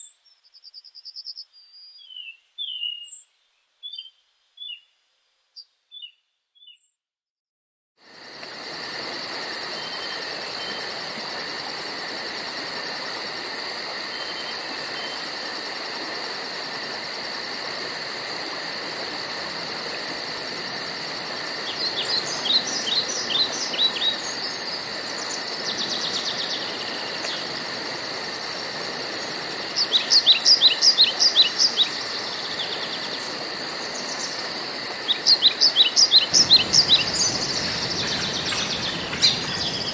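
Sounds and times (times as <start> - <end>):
pulsing insect drone: 8.0 - 39.9
bird chirps: 35.1 - 39.9
songbird singing falling notes: 36.0 - 39.9.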